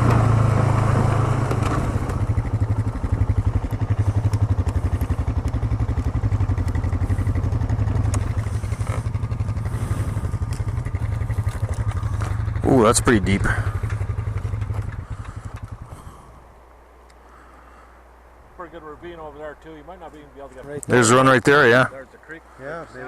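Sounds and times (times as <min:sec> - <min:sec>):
atv engine running: 0:00.0 - 0:17.8.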